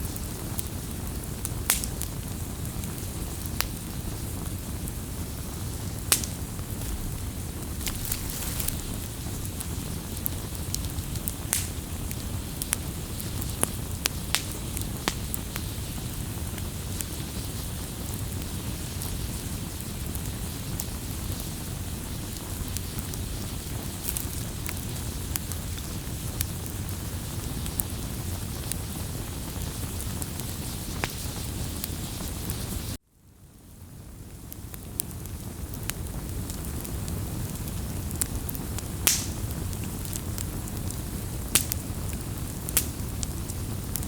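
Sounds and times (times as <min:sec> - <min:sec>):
wood fire rumbling: 0:00.0 - 0:33.0, 0:33.9 - 0:44.0
fire crackles and pops: 0:00.0 - 0:44.0.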